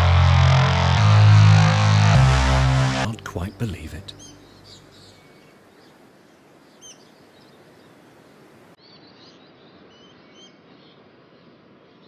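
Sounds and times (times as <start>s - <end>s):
steady background hiss: 3.1s - 11.9s.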